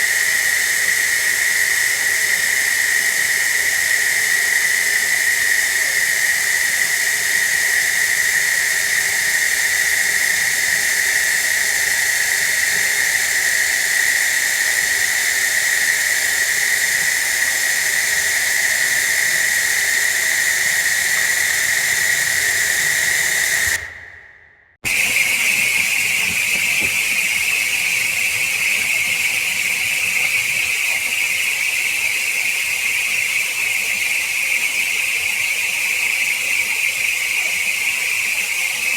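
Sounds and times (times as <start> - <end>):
running water with voice-changer effect: 24.9 - 38.9.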